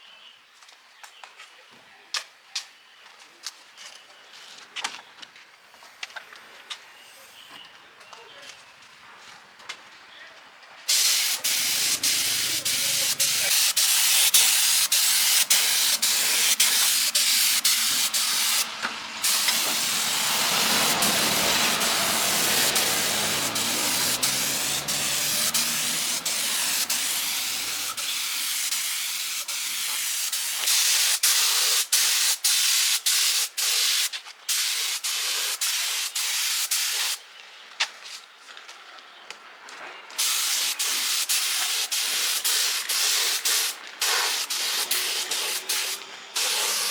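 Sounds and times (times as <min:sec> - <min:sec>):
high-pressure spray hissing: 0:10.9 - 0:37.2, 0:40.2 - 0:46.9.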